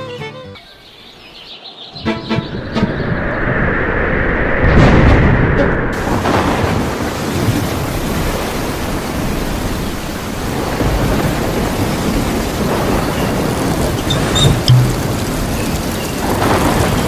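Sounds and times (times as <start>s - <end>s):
thunder rumbling: 2.7s - 17.0s
heavy rain hissing: 6.0s - 17.0s.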